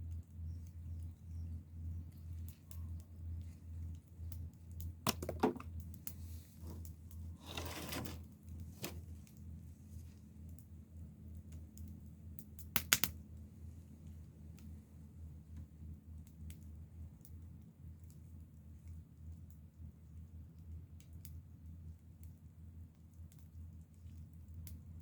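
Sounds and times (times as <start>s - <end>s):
wood fire crackling: 5.7s - 14.8s
brief rustle: 6.5s - 9.1s.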